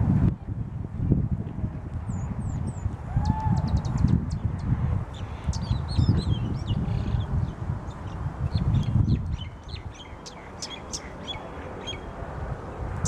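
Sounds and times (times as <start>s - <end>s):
small birds chirping: 2.1s - 12.2s.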